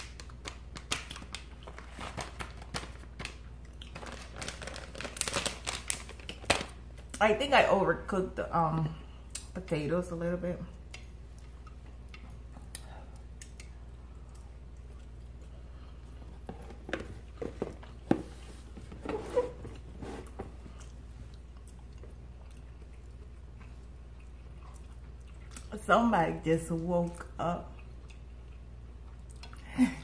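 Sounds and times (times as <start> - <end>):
low steady hum: 0.0 - 30.0
people chewing food: 3.3 - 5.4, 10.7 - 18.0, 19.7 - 25.7, 27.1 - 29.8.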